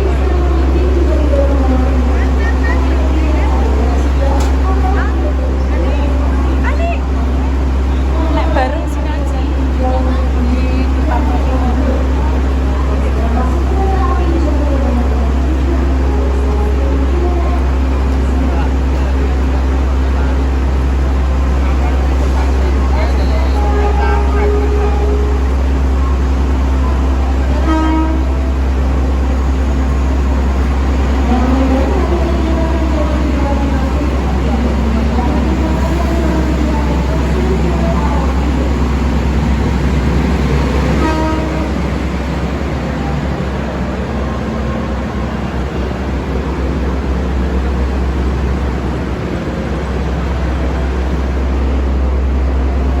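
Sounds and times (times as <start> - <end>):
train rumbling: 0.0 - 53.0
train horn toot: 23.2 - 25.6, 27.5 - 28.4, 40.8 - 41.9.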